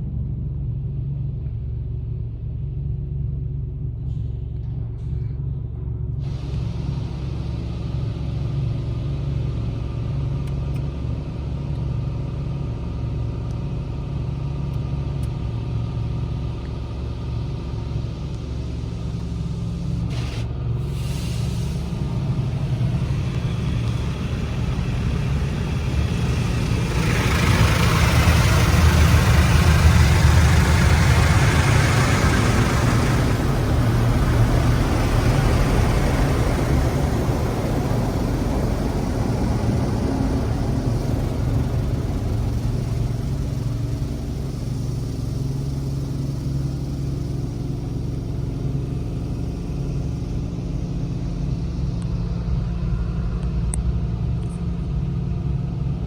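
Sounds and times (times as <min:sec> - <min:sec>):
low rumble of machinery: 0:00.0 - 0:56.0
rushing hiss of car wash: 0:18.5 - 0:49.8.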